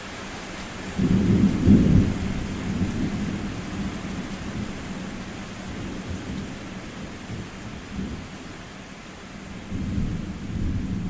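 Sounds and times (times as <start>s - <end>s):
steady rain: 0.0s - 11.0s
thunder rumbling: 1.0s - 5.0s.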